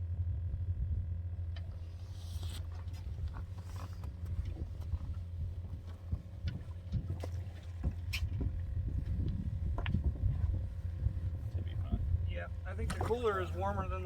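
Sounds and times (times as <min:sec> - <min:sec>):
boat engine idling: 0:01.1 - 0:14.0
gear knocking against hull: 0:03.1 - 0:12.1.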